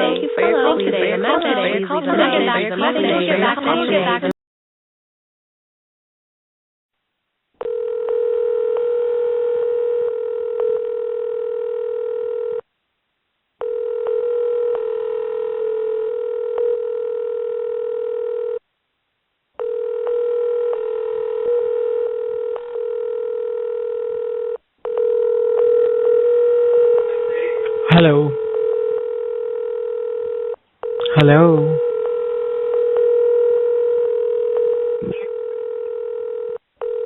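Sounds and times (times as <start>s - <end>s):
telephone tone: 7.6s - 12.6s, 13.6s - 18.6s, 19.6s - 37.0s.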